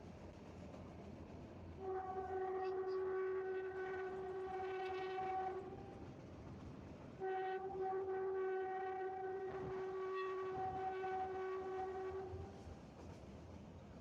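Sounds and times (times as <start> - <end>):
train horn blasts: 1.8 - 5.9, 7.2 - 12.7.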